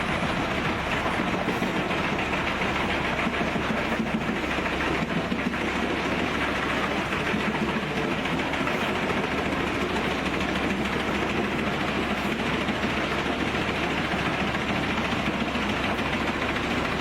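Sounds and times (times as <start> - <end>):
wood chipper running: 0.0 - 17.0.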